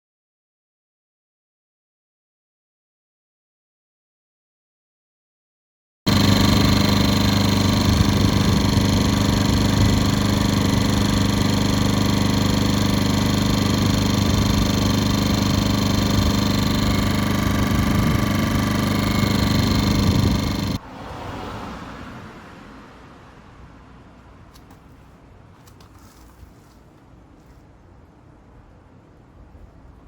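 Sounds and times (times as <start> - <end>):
generator engine running: 6.1 - 20.8.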